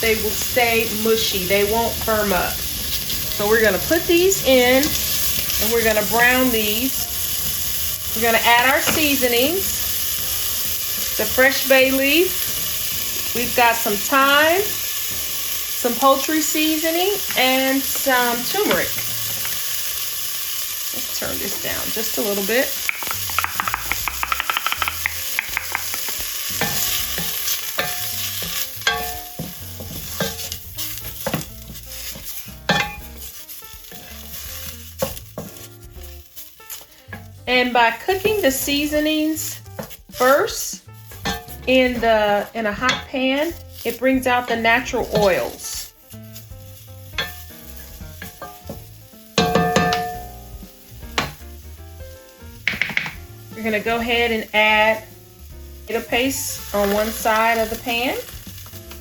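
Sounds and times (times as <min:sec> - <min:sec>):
food sizzling in a pot: 0:00.0 - 0:59.0
soft background music: 0:00.0 - 0:59.0
utensil scraping and clinking pot: 0:22.8 - 0:38.6, 0:41.0 - 0:45.7, 0:47.1 - 0:48.8.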